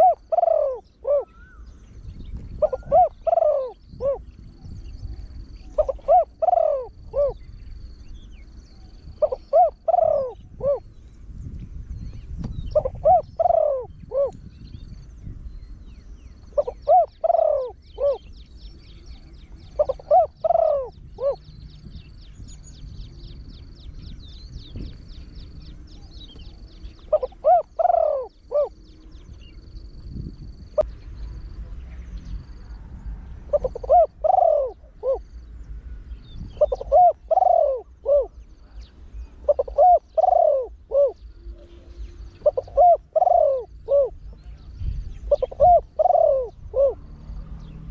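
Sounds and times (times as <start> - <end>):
dove cooing: 0.0 - 1.8, 2.5 - 7.6, 8.9 - 11.0, 12.6 - 14.5, 16.4 - 18.4, 19.1 - 21.6, 26.1 - 30.8, 33.4 - 35.4, 36.5 - 47.9.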